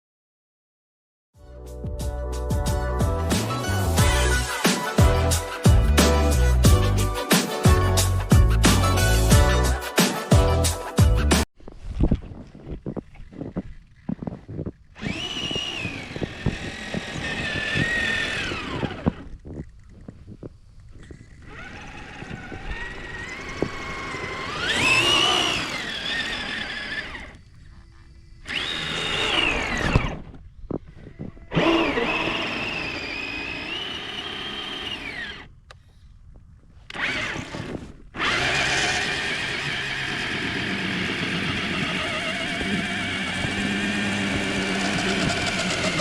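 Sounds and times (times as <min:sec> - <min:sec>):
electric motor whining: 0:14.9 - 0:35.5, 0:36.9 - 0:46.0.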